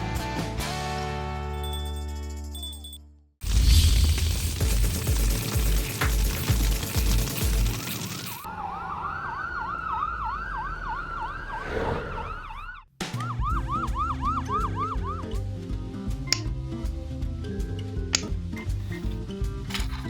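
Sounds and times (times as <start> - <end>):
music with heavy beat: 4.2 - 7.8
police siren yelping: 8.5 - 15.4.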